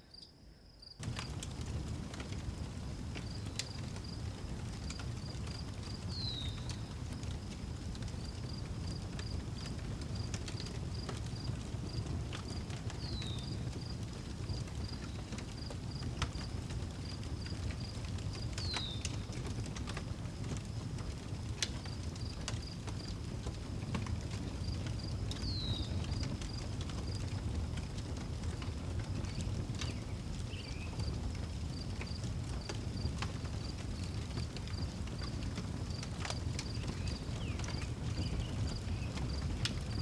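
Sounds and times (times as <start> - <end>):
cricket chirping: 0.0 - 1.0
wood fire crackling and popping: 1.0 - 40.0.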